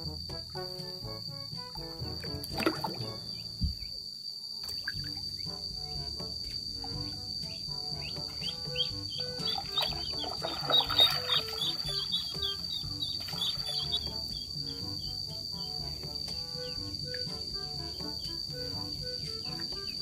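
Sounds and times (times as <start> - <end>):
plucked background music: 0.0 - 3.5, 4.8 - 20.0
high insect drone: 0.0 - 20.0
water splashing: 1.9 - 3.8, 4.6 - 5.5, 8.3 - 14.4
high chirps: 4.6 - 20.0.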